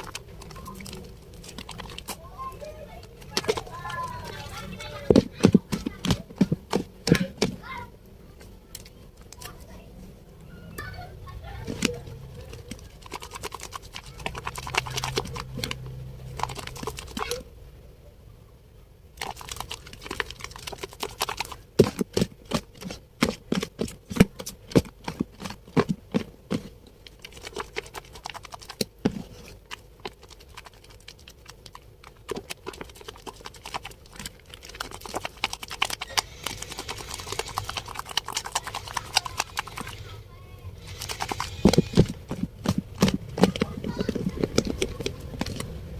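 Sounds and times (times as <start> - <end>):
soap lathering wet clicks: 0.0 - 2.2, 11.8 - 17.3, 19.2 - 26.2, 27.0 - 40.1, 40.8 - 45.8.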